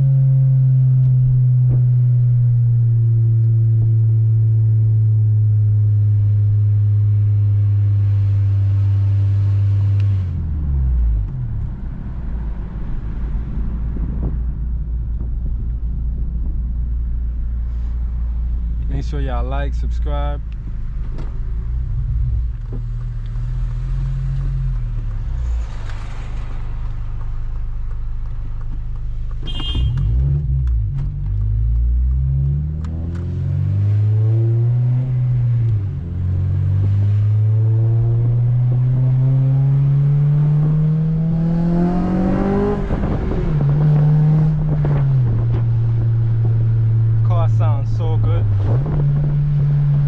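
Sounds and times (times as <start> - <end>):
car engine revving from inside: 29.6 - 47.2.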